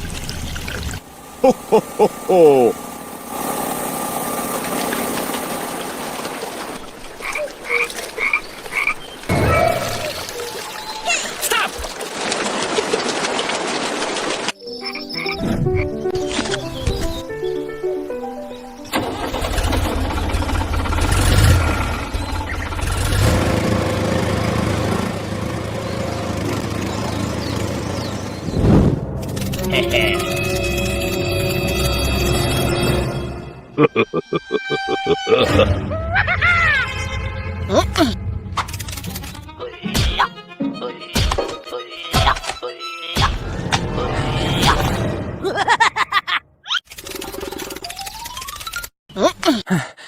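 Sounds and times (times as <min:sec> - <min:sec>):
frog croaking: 0:07.2 - 0:09.0
small engine running: 0:18.9 - 0:28.5.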